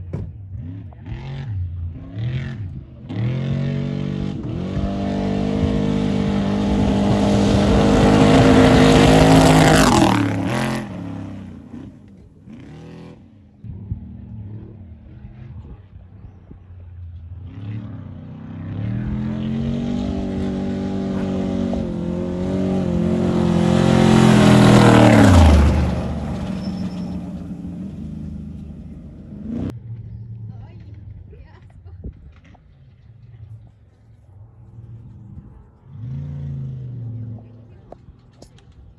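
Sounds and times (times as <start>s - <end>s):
short engine revs: 0.5s - 15.8s, 17.4s - 30.9s
race trucks passing at speed: 3.1s - 12.9s, 17.7s - 29.8s.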